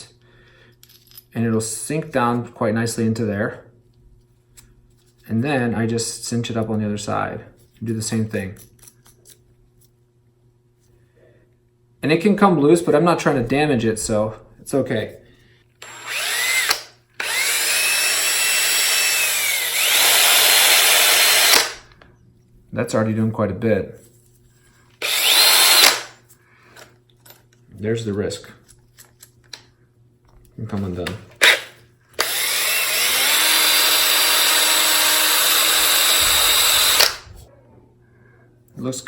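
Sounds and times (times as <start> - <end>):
cordless drill motor whine: 15.8 - 21.8, 25.0 - 26.1, 32.2 - 37.3.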